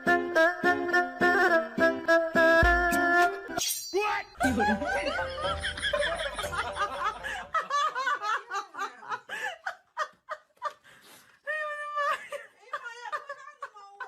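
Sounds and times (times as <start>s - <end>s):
music: 0.0s - 3.6s, 4.4s - 7.1s
person laughing: 4.4s - 10.7s.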